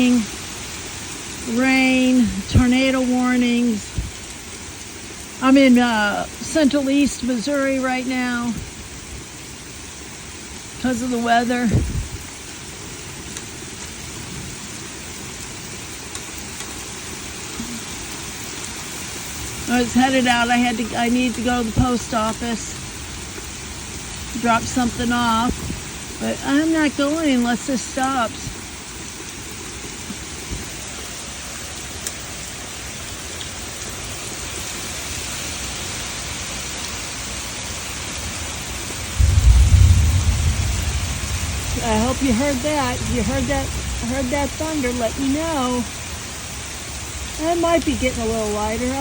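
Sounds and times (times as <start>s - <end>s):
heavy rain pouring: 0.0s - 49.0s.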